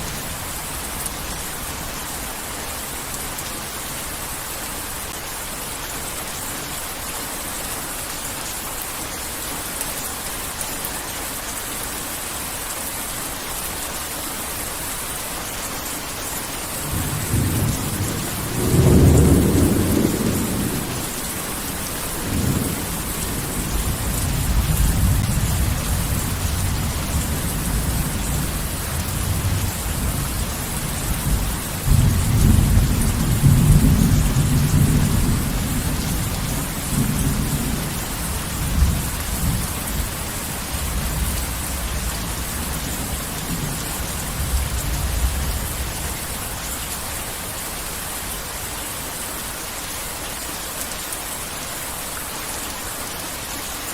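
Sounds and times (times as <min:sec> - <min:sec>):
heavy rain: 0:00.0 - 0:53.9
rolling thunder: 0:16.8 - 0:46.2.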